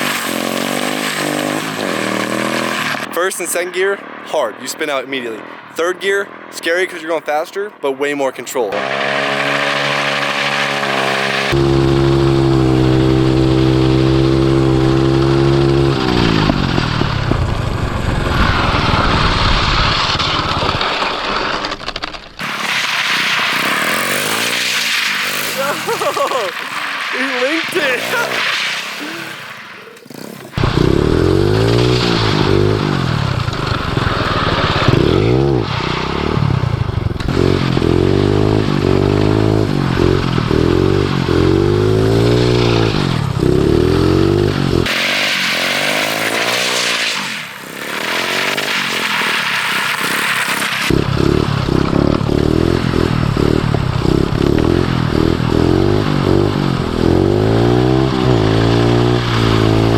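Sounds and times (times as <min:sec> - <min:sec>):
small engine revving: 0:00.0 - 0:03.1, 0:08.7 - 0:20.8, 0:22.4 - 0:59.9.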